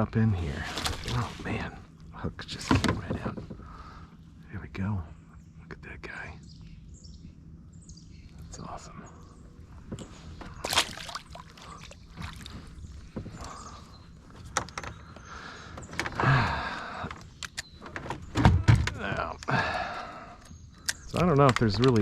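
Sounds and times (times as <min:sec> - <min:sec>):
handling knocks and rustles in kayak: 0:00.6 - 0:01.6, 0:02.5 - 0:03.7, 0:09.8 - 0:17.2
heavy thumps against hull: 0:02.5 - 0:03.8.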